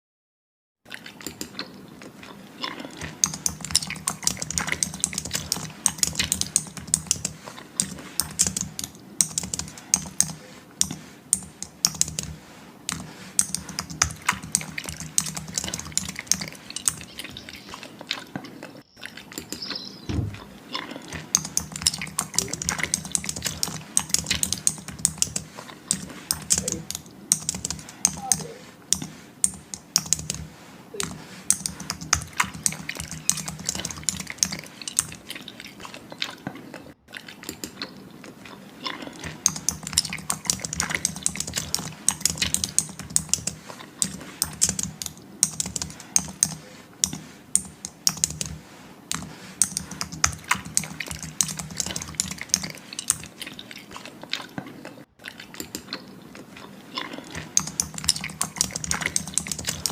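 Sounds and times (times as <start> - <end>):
keyboard typing: 3.0 - 17.8, 19.4 - 35.3, 39.2 - 53.4, 57.2 - 59.9.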